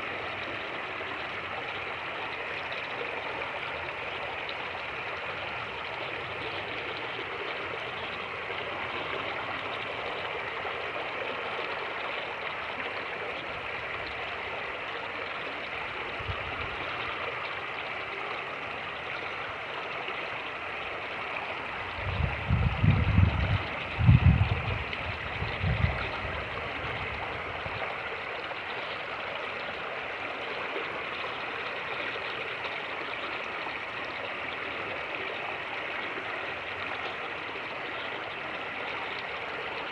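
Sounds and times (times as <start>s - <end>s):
wind buffeting microphone: 21.8s - 27.9s.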